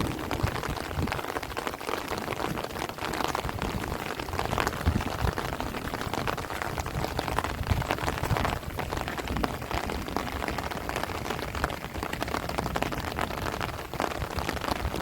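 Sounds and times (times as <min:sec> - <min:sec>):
heavy rain on plants: 0:00.0 - 0:15.0
wind rumbling on microphone: 0:00.0 - 0:15.0.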